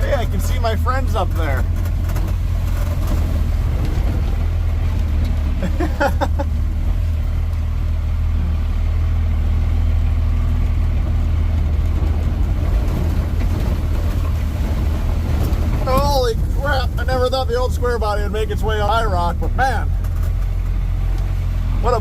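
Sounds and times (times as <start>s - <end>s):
pickup truck engine rumble: 0.0s - 22.0s.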